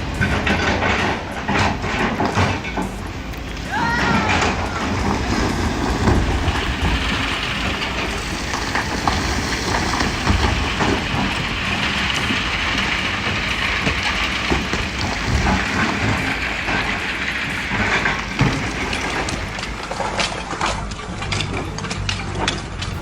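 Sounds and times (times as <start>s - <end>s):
heavy machinery engine rumble: 0.0s - 23.0s
machinery clanks and clatter: 0.0s - 23.0s.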